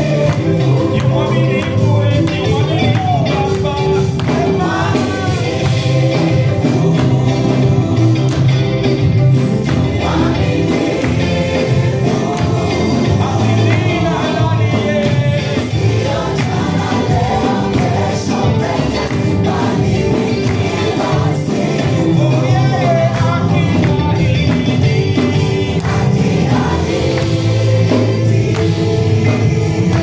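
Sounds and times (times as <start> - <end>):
band with bass and percussion: 0.0 - 30.0
choir singing gospel: 0.0 - 30.0.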